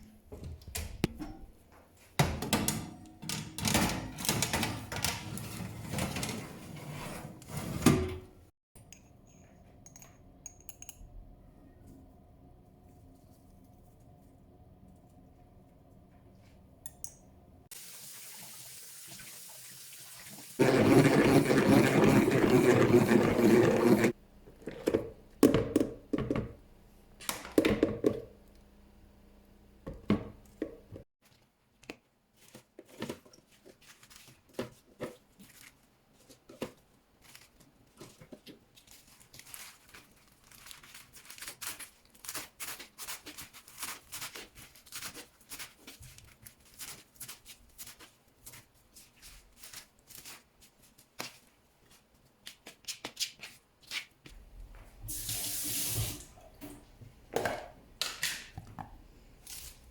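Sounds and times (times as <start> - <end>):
paper or plastic crinkling: 32.4 - 51.5.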